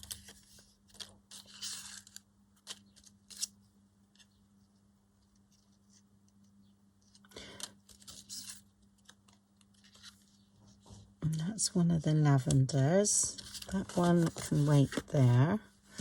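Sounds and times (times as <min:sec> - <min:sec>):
paper being handled: 0:13.3 - 0:16.0.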